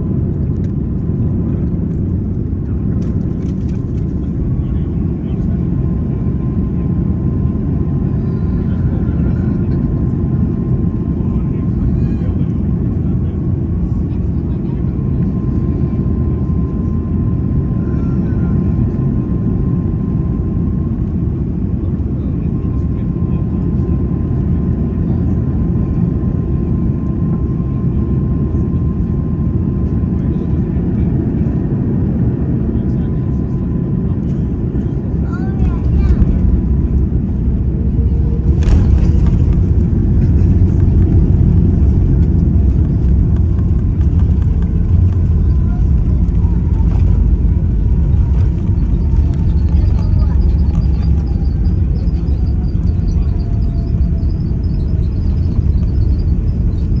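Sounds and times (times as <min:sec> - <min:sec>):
low rumble of engines and airflow: 0:00.0 - 0:57.0
faint steady whine: 0:34.3 - 0:57.0.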